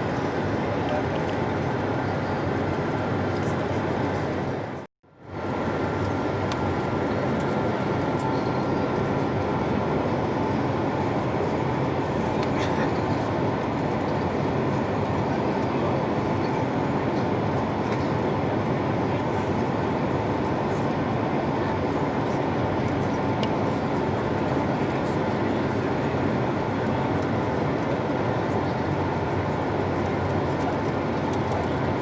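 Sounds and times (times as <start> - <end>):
airliner cabin roar: 0.0 - 32.0.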